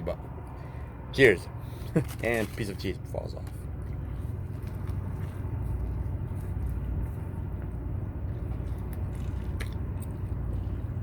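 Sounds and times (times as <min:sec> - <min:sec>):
steady low rumble: 0:00.0 - 0:11.0
person chewing food: 0:03.8 - 0:11.0.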